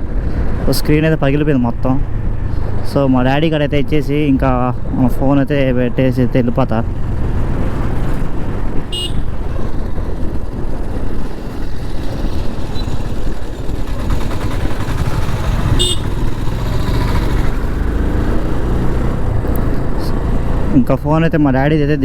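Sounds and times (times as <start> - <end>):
motorcycle engine and wind rumble: 0.0 - 22.0
vehicle horn toots: 8.9 - 9.4, 15.7 - 16.2.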